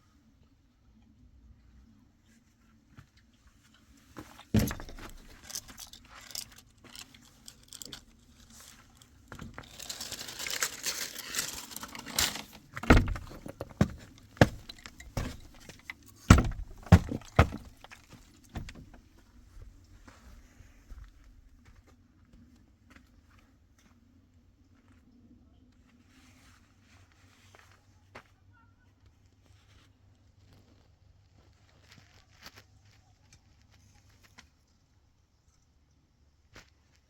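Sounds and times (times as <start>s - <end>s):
rustling and scraping: 2.3s - 21.3s
sharp clatters and knocks: 4.2s - 8.7s, 9.3s - 19.1s.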